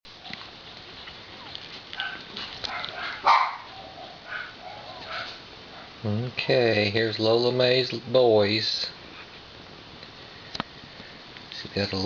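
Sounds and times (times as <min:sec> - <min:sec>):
puppies squeaking and whimpering: 0:01.0 - 0:05.4.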